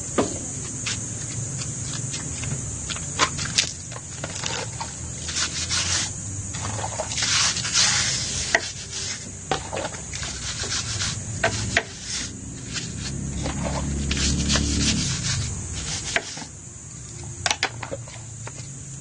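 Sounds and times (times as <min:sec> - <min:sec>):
wet scrubbing on bodywork: 0:01.9 - 0:16.5.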